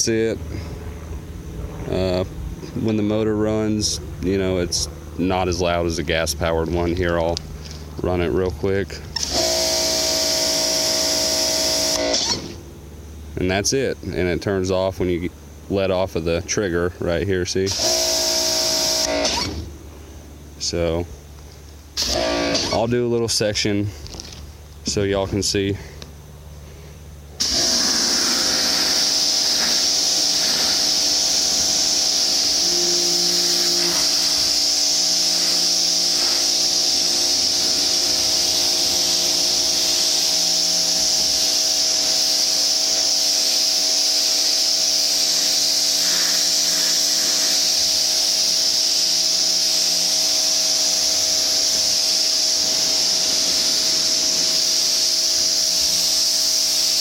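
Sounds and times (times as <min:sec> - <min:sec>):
pressure washer motor whine: 0:00.0 - 0:13.7, 0:17.5 - 0:20.7, 0:21.4 - 0:23.0, 0:26.8 - 0:57.0
water jet spraying a tin roof: 0:27.4 - 0:57.0.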